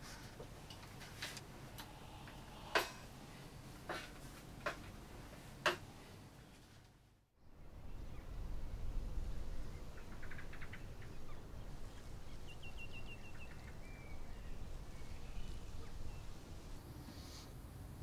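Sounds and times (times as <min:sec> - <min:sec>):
steady low rumble: 0:07.4 - 0:17.0
small birds chirping: 0:07.6 - 0:17.4.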